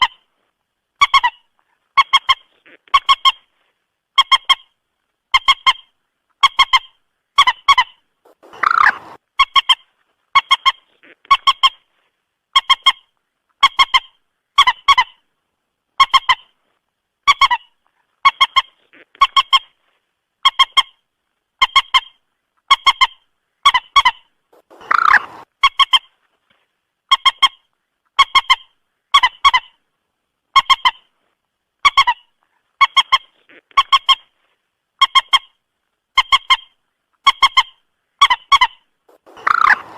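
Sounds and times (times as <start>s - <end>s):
moorhen stuttering call: 1.0s - 3.5s, 5.3s - 11.9s, 22.7s - 26.1s, 36.2s - 39.9s
harsh moorhen call: 6.5s - 9.7s, 23.7s - 25.9s, 37.5s - 39.9s.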